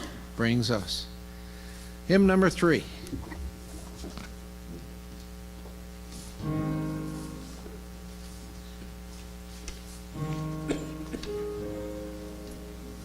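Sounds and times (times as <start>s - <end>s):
steady electrical hum: 0.0s - 13.0s
piano chords: 6.4s - 7.8s, 10.1s - 13.0s.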